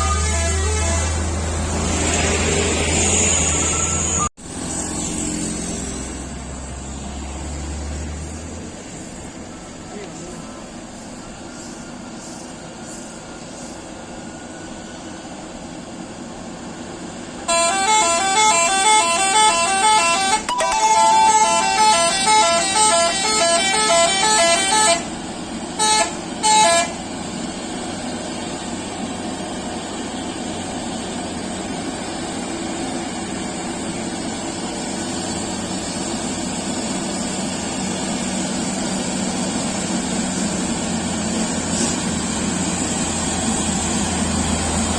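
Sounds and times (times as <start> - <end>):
multi-tone musical horn: 0.0 - 1.2, 17.4 - 25.1, 25.8 - 27.0
short horn toots: 0.0 - 1.2, 17.5 - 25.1, 25.8 - 27.0
truck engine drone: 0.0 - 44.9.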